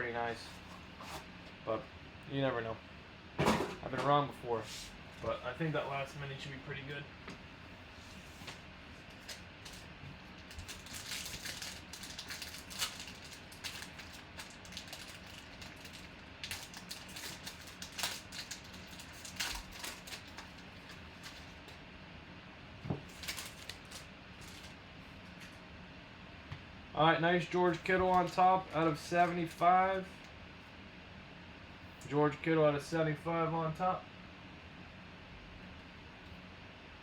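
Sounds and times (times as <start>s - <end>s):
card packaging rustling: 9.1s - 21.8s, 23.0s - 24.8s, 27.7s - 29.7s.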